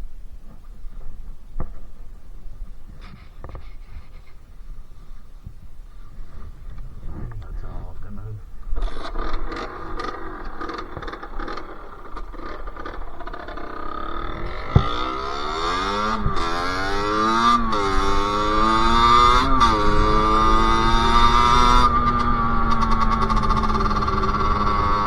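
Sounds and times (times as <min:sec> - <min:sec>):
two-stroke motorcycle engine revving: 0:08.8 - 0:25.0.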